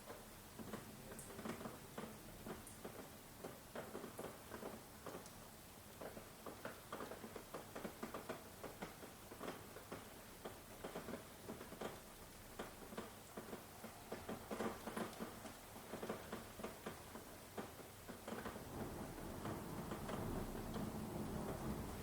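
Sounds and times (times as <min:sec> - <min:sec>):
raindrops pattering on a surface: 0:00.0 - 0:22.0
rain hiss: 0:00.1 - 0:22.0.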